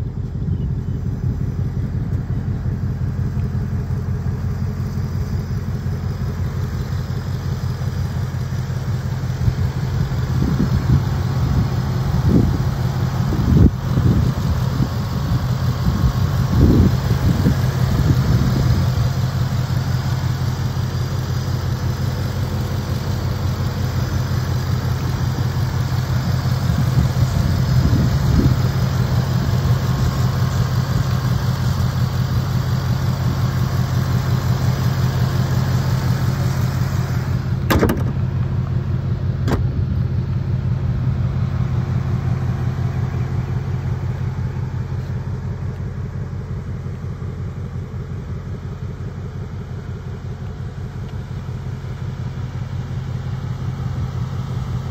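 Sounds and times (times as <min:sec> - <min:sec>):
car engine idling: 0:00.0 - 0:54.9
car hood shutting knocks: 0:37.6 - 0:38.3, 0:39.4 - 0:39.8.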